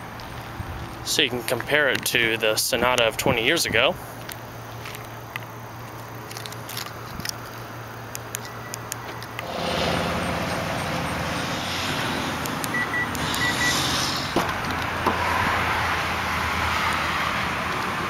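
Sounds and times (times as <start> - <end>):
road noise: 0.0 - 18.0
car engine hum: 4.2 - 18.0.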